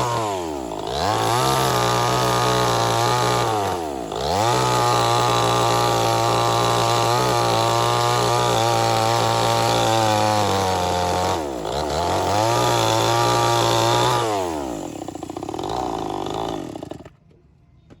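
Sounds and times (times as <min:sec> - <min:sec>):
chainsaw engine revving: 0:00.0 - 0:17.2.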